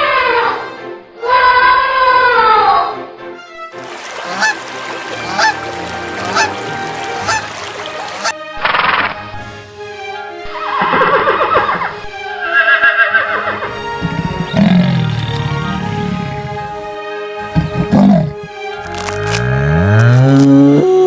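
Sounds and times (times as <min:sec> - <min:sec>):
ducks calling: 0:03.8 - 0:08.4.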